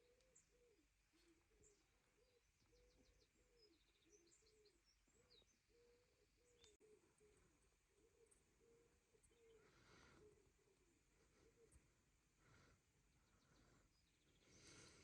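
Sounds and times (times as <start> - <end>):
pigeon cooing: 0.0 - 11.8
small birds chirping and trilling: 0.0 - 15.0.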